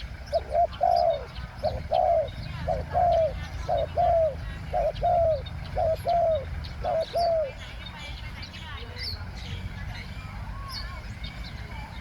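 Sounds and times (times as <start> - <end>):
dove cooing: 0.0 - 7.7
small birds chirping: 0.0 - 12.0.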